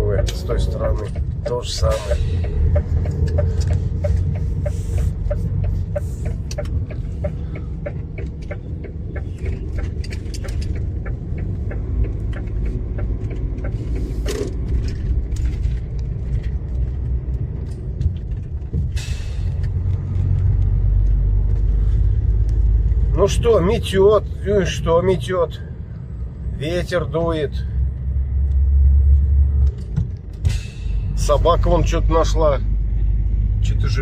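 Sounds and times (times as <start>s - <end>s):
even ticking: 0.0s - 15.3s
vehicle rumble from inside cab: 0.0s - 34.0s.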